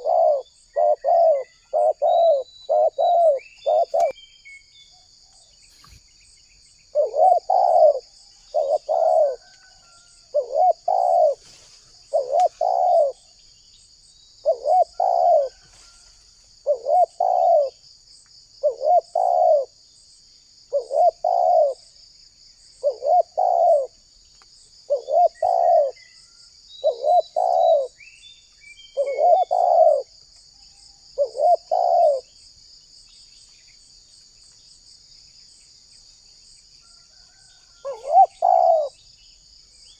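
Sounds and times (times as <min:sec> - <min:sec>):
dove cooing: 0:00.0 - 0:04.1, 0:06.9 - 0:11.5, 0:12.1 - 0:13.3, 0:14.4 - 0:15.8, 0:16.6 - 0:17.8, 0:18.6 - 0:19.8, 0:20.7 - 0:21.8, 0:22.8 - 0:24.0, 0:24.9 - 0:26.0, 0:26.8 - 0:28.0, 0:29.0 - 0:30.1, 0:31.2 - 0:32.3, 0:37.3 - 0:39.0
insects buzzing: 0:00.0 - 0:39.9.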